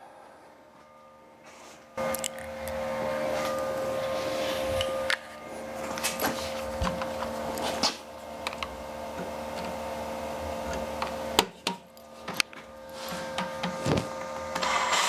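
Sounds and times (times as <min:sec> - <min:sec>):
electric drill drilling: 0:13.1 - 0:15.0.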